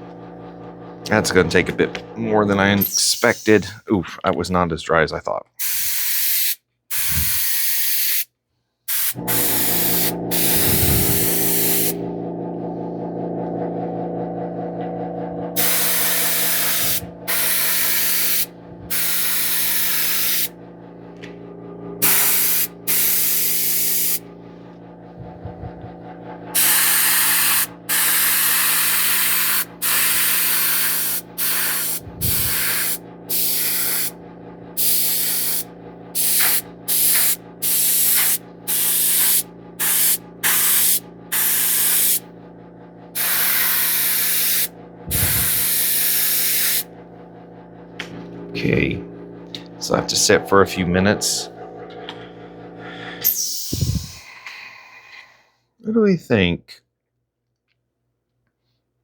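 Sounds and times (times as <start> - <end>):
steady mechanical hum: 0.0 - 6.0, 6.9 - 7.5, 8.9 - 55.0
airbrush spraying hiss: 5.6 - 8.3, 8.9 - 12.0, 15.6 - 20.5, 22.0 - 24.2, 26.5 - 34.2, 34.8 - 42.2, 43.2 - 46.9.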